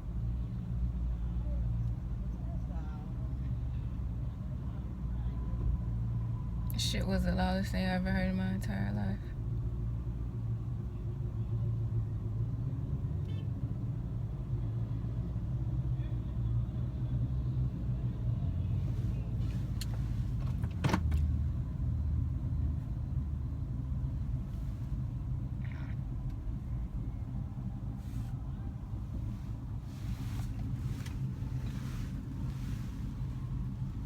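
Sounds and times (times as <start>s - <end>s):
vehicle engine idling: 16.0s - 34.0s.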